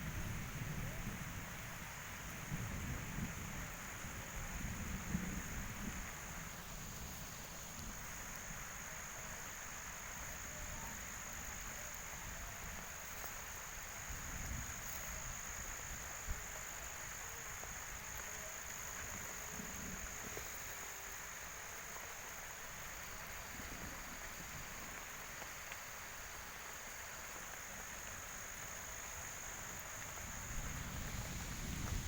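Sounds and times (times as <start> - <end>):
wind gusts on microphone: 0.0 - 8.8, 10.1 - 20.6, 28.2 - 32.0
insects droning: 0.0 - 32.0
rain falling: 0.0 - 32.0.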